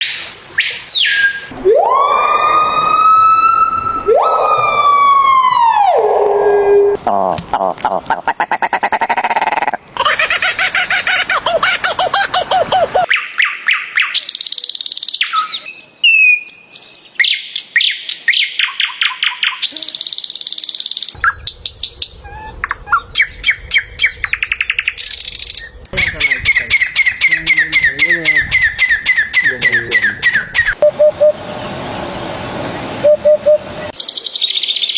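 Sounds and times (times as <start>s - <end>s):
animal's siren-like call: 0.6s - 7.0s
small birds chirping and trilling: 13.1s - 32.9s, 33.7s - 34.9s.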